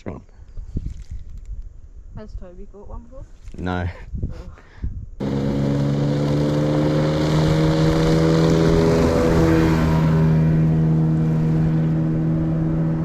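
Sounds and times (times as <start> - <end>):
motorboat engine running: 5.2 - 13.0
water noise: 5.2 - 13.0.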